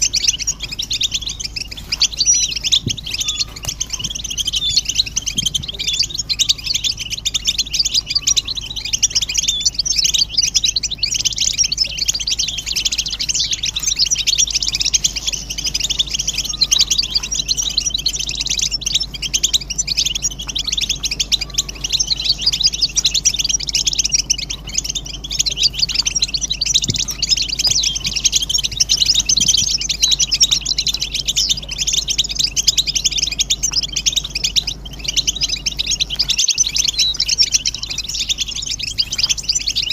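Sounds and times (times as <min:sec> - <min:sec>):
goldfinches twittering: 0:00.0 - 0:39.9
steady low hum: 0:00.0 - 0:39.9.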